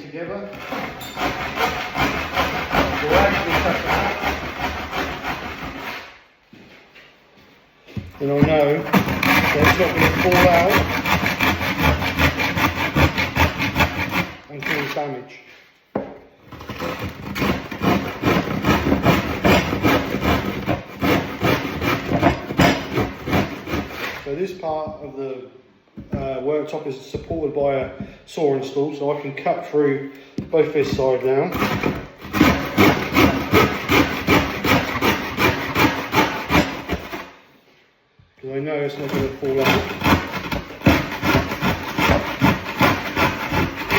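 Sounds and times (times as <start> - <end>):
handsaw cutting worktop: 0.2 - 6.2, 8.0 - 15.2, 16.0 - 24.5, 30.4 - 37.4, 38.9 - 43.9.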